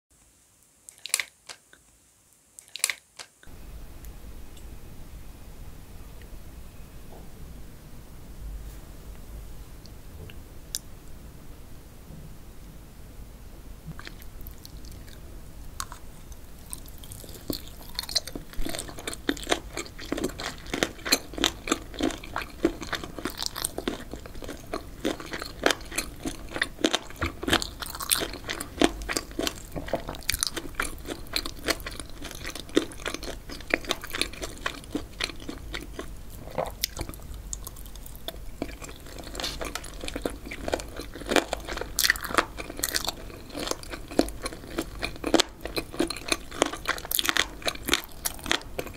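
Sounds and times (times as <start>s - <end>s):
crunchy chewing: 0.9s - 1.6s, 2.6s - 3.3s, 13.9s - 48.9s.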